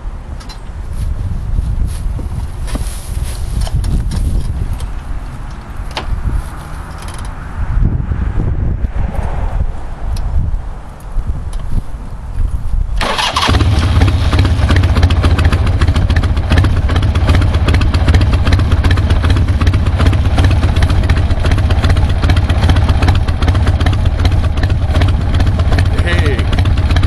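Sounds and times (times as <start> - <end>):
motorcycle engine sputtering: 13.0 - 27.0
motorcycle engine starting and idling: 13.0 - 27.0.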